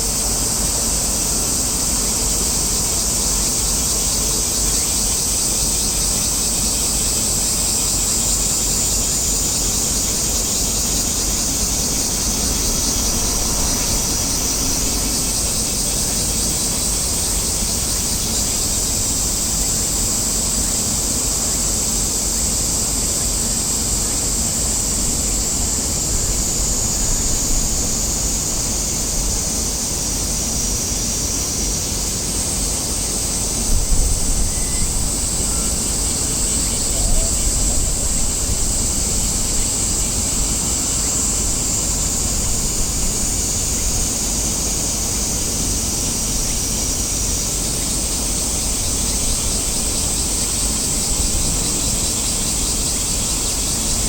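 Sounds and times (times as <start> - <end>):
low rumbling noise: 11.0 - 17.5.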